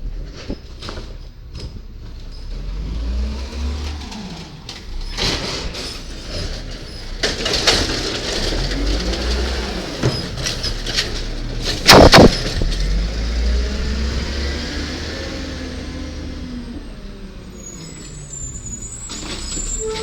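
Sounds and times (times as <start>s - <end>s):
garbage truck engine rumbling: 0.0s - 20.0s
knocks and clanks: 4.0s - 13.0s
loud bang: 11.8s - 12.6s.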